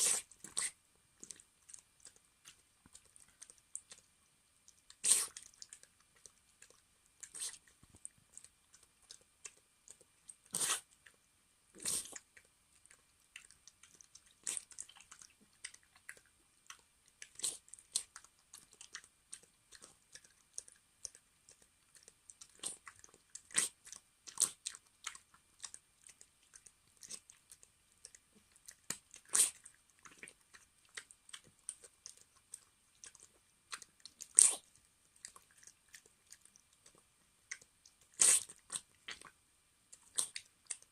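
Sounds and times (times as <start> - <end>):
dog chewing food crunching: 11.8 - 39.3.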